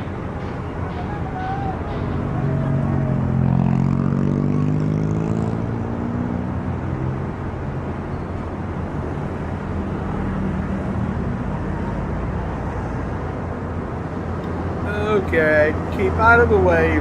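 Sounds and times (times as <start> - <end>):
diesel locomotive engine running: 0.0 - 4.1
rail yard rumble: 0.0 - 5.1, 6.7 - 17.0.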